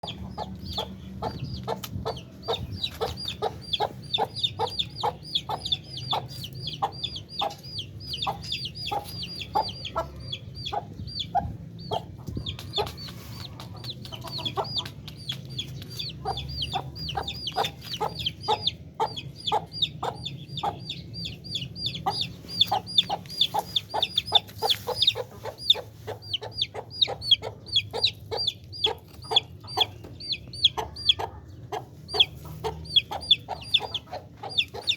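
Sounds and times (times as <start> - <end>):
chickens calling: 0.0 - 34.9.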